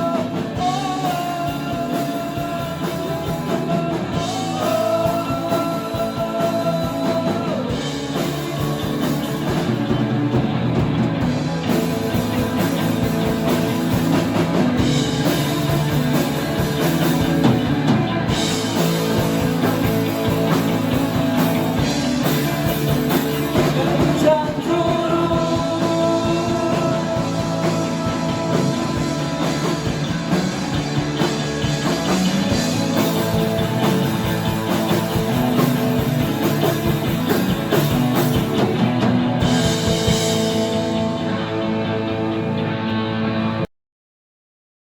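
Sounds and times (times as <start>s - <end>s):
rock band playing live: 0.0s - 43.7s.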